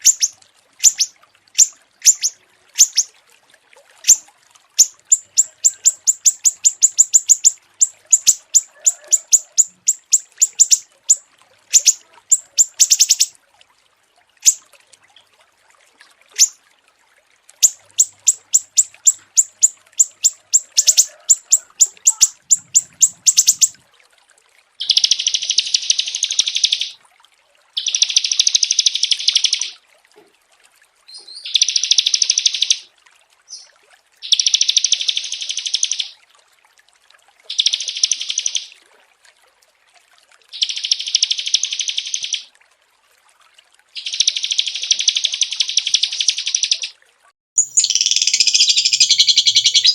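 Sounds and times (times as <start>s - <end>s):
buzzy bird trills: 0.0s - 3.1s, 4.0s - 4.2s, 4.8s - 13.3s, 16.4s - 16.6s, 17.6s - 23.8s, 24.8s - 27.0s, 34.2s - 36.2s, 37.5s - 38.7s, 40.6s - 42.5s, 44.0s - 46.9s, 47.6s - 49.9s
songbirds chipping: 0.0s - 3.1s, 4.8s - 13.3s, 17.6s - 23.8s, 47.6s - 49.9s.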